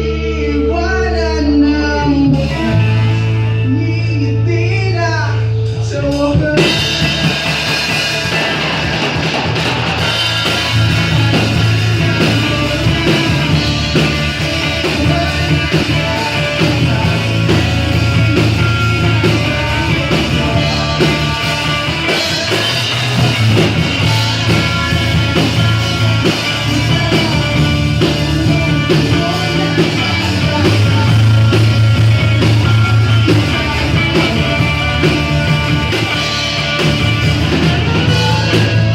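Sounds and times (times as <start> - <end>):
rock band playing: 0.0 - 38.9.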